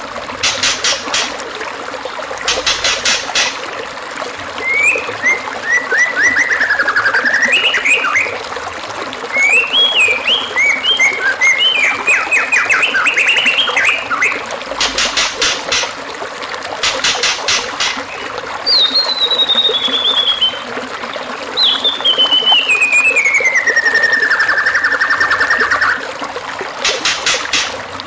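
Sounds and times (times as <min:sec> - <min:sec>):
running water trickling: 0:00.0 - 0:28.0
bird singing whistled phrases: 0:04.6 - 0:08.4, 0:09.3 - 0:14.4, 0:18.7 - 0:20.7, 0:21.6 - 0:26.0
sharp clicks: 0:26.8 - 0:27.8.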